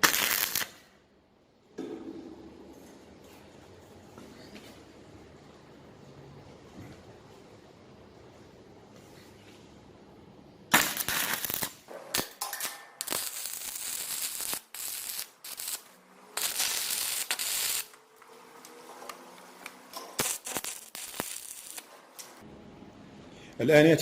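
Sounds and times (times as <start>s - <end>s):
electric arc welding crackle: 0.0s - 0.8s, 10.7s - 22.4s.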